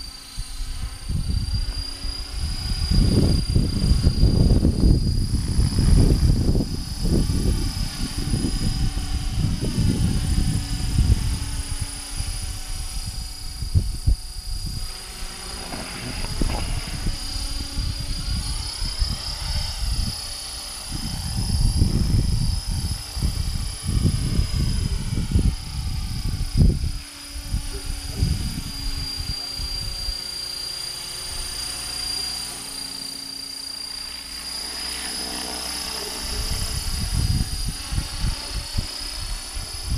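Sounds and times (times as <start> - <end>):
wind buffeting microphone: 0.0 - 32.0, 35.9 - 39.9
rc helicopter whine and hum: 0.0 - 39.9.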